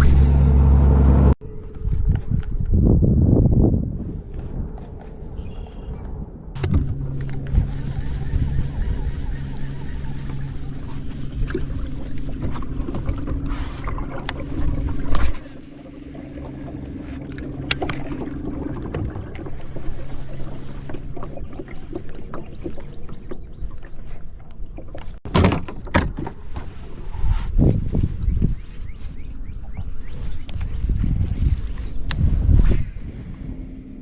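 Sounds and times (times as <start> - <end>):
low mechanical hum: 0.0 - 25.3
outdoor background: 0.0 - 34.0.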